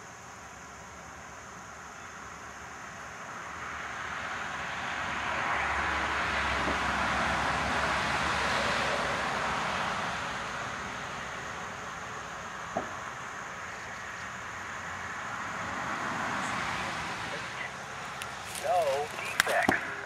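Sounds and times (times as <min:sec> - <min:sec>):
heavy rain hissing: 0:10.8 - 0:20.0.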